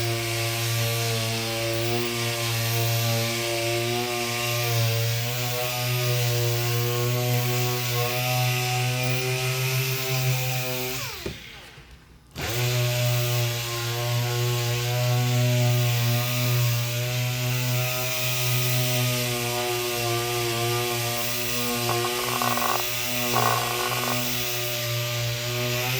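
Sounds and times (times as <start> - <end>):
electric power sander motor whine: 18.7 - 25.9.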